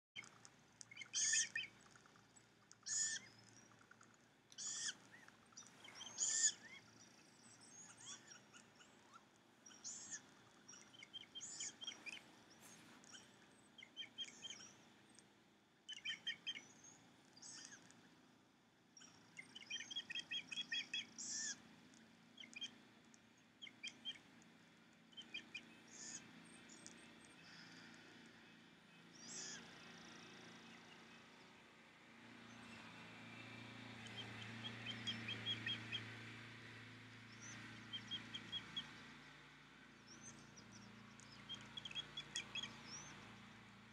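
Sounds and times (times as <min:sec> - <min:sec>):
short high bird calls: 0:00.9 - 0:01.7, 0:02.8 - 0:03.3, 0:04.6 - 0:05.2, 0:05.8 - 0:07.0.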